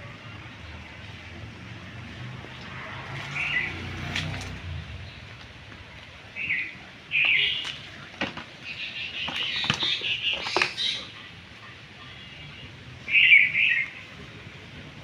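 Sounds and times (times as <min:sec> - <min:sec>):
outdoor background noise: 0:00.0 - 0:15.0
bird calls: 0:06.3 - 0:14.1
taps and slaps handling fish: 0:09.2 - 0:10.8.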